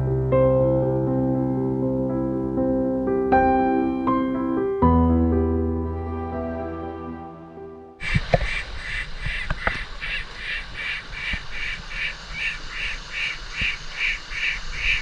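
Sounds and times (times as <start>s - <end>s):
animal calling rhythmically: 8.0s - 15.0s.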